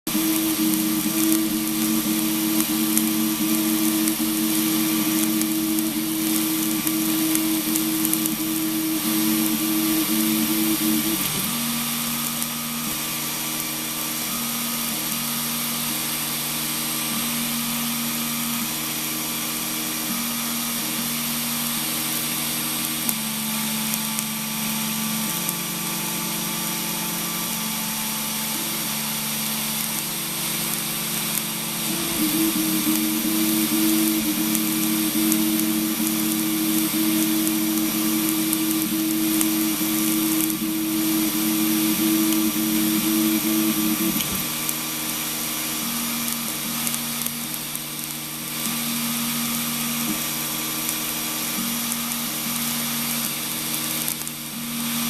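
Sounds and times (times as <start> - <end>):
stepper motors humming: 0.1 - 19.0, 19.9 - 55.0
fan hiss: 0.1 - 55.0.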